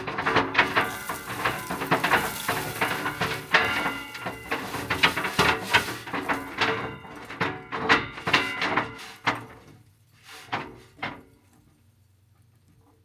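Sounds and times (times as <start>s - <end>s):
hard objects knocking and clattering: 0.0s - 9.0s.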